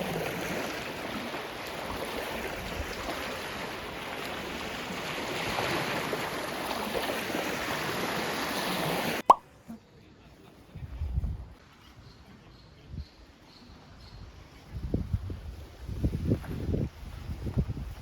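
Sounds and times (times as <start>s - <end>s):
small waves washing on shore: 0.0s - 9.3s.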